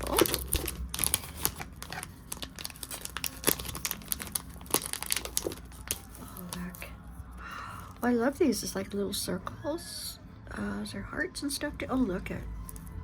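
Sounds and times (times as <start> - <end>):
packaging crinkling: 0.0 - 6.9.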